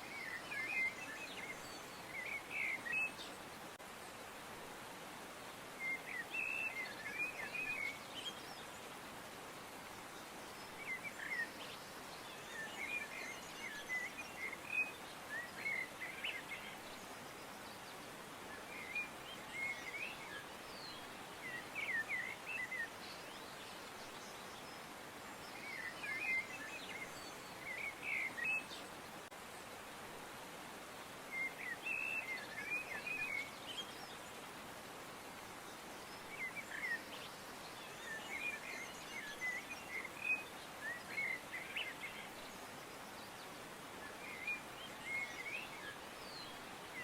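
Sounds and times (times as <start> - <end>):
songbirds chirping: 0.0 - 47.0
steady background hiss: 0.0 - 47.0.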